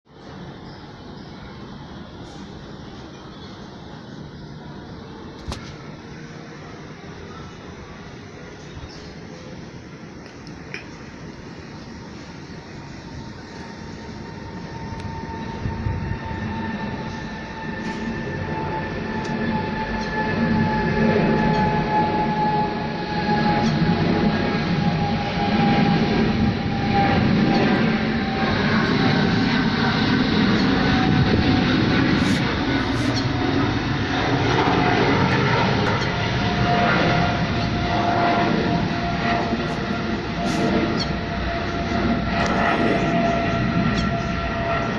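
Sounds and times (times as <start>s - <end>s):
jet engines rumbling and whining: 0.1s - 44.9s.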